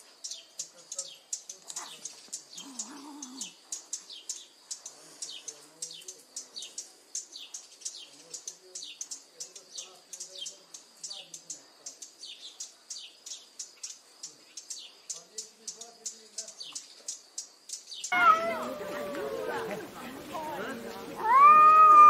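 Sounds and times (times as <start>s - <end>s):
small birds chirping: 0.0s - 22.0s
cat growling and yowling: 18.1s - 19.8s, 21.2s - 22.0s.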